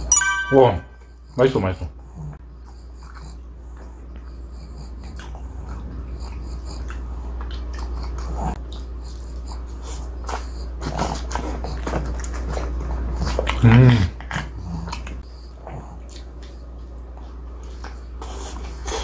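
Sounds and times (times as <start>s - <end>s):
low steady hum: 0.0s - 1.4s
chewing: 2.6s - 19.0s.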